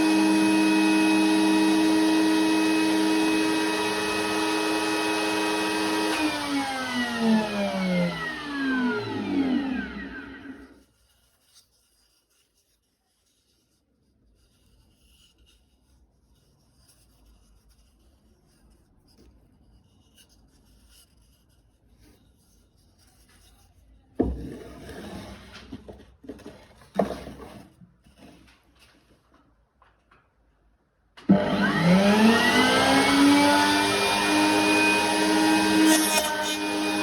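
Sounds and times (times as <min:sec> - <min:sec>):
router motor spinning down: 0:00.0 - 0:10.8, 0:31.2 - 0:37.0.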